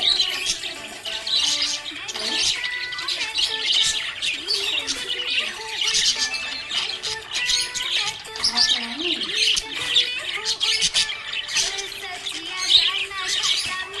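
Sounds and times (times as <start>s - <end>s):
budgerigars chirping and chattering: 0.0s - 14.0s.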